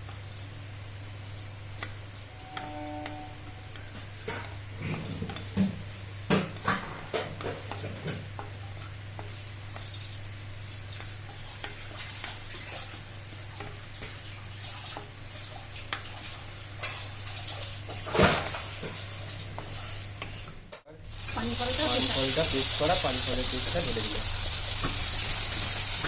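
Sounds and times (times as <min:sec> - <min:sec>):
spices sizzling in hot oil: 0:07.4 - 0:26.0.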